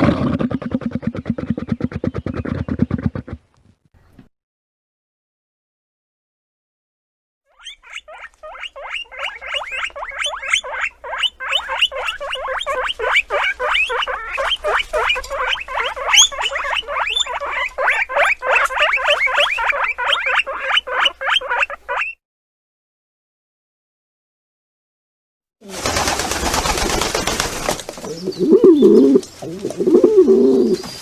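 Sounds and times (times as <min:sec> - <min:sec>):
guinea pig squeaking: 0:07.5 - 0:22.2.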